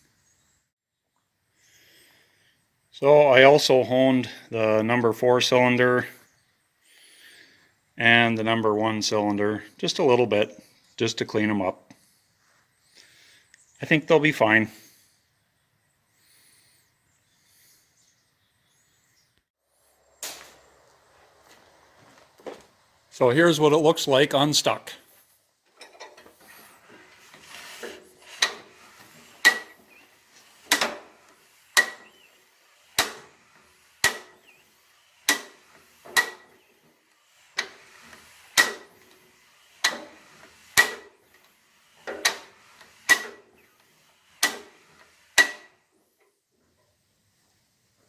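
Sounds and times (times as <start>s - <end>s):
sharp metallic engine clicks: 27.3s - 45.8s.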